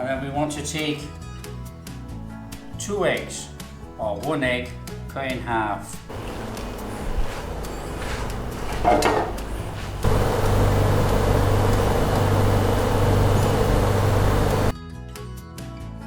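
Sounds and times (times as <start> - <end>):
mechanical hum: 6.1 - 14.7.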